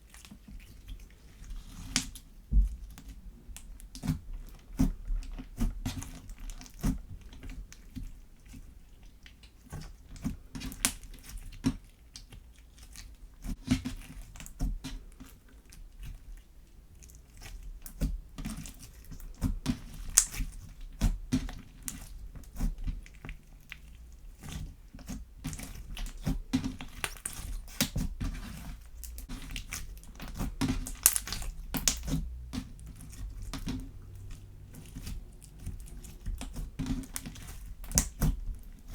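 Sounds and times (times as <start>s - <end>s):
slime squelching and popping: 17.0s - 38.9s.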